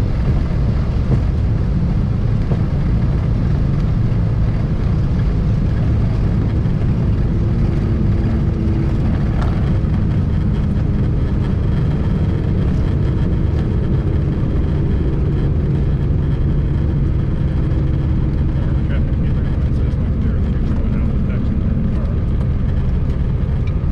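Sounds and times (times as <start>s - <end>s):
twin piston engines droning: 0.0s - 23.9s.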